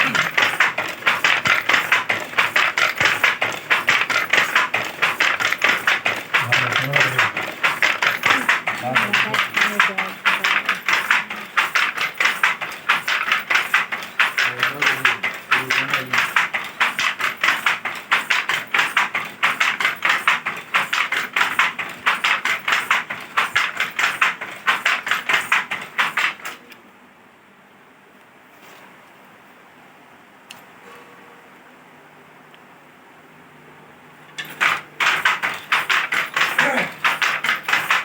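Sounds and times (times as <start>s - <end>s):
handloom clacking: 0.0s - 26.7s, 34.3s - 38.0s.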